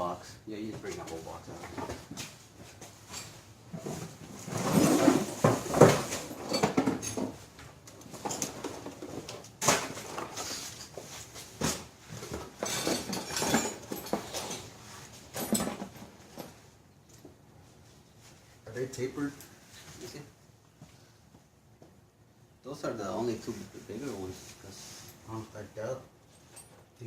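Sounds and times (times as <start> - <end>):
metal parts clattering in a box: 12.6 - 14.7.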